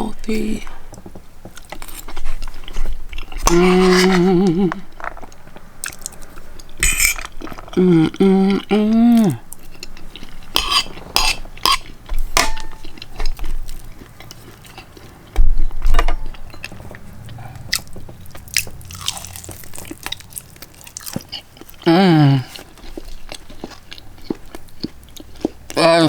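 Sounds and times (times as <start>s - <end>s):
voiced hum: 0.0s - 26.0s
person chewing: 0.2s - 26.0s
cutlery and dishes clicking: 10.6s - 13.4s.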